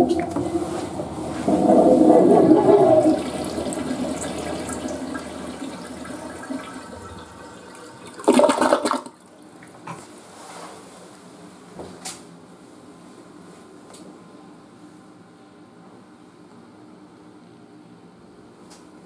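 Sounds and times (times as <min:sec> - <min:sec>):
toilet flushing: 0:00.0 - 0:09.8.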